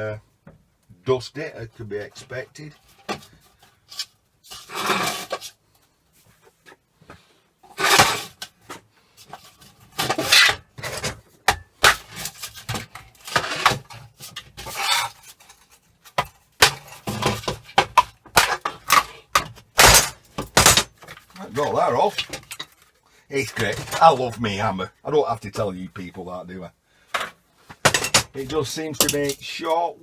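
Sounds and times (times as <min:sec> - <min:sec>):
hammer scraping metal parts: 0:27.8 - 0:29.5.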